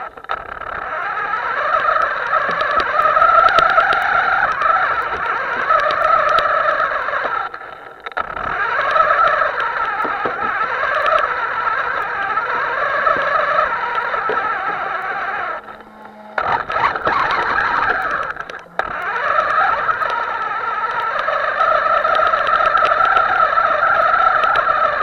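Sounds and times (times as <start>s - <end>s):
small electric motor whirring: 0.0s - 25.0s.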